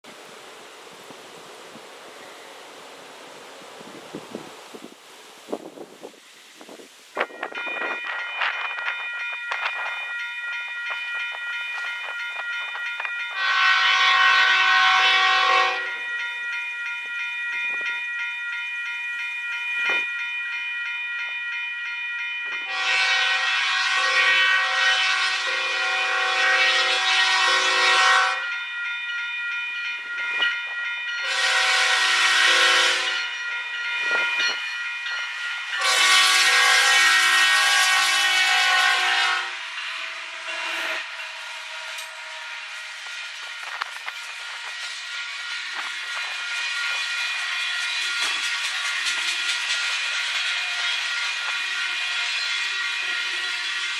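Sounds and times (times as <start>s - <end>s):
steady high ringing tones: 6.1s - 23.4s, 26.9s - 38.0s, 39.5s - 53.9s
locomotive air horn blasts: 13.3s - 16.1s, 22.6s - 28.5s, 31.2s - 33.3s, 35.6s - 48.3s.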